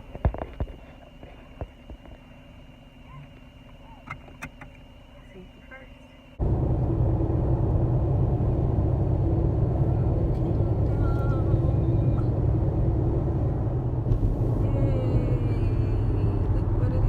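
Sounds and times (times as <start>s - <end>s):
vehicle rumble from on board: 6.4s - 17.0s.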